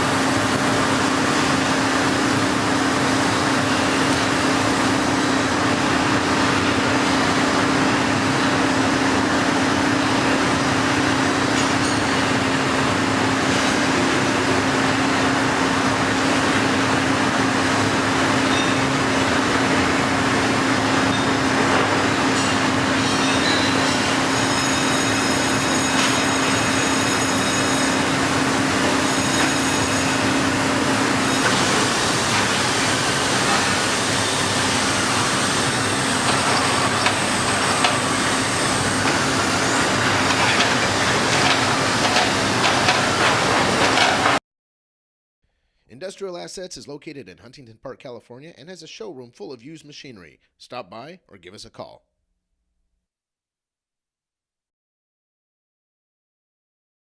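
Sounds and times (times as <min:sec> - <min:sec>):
plate bending machine humming: 0:00.0 - 0:44.4.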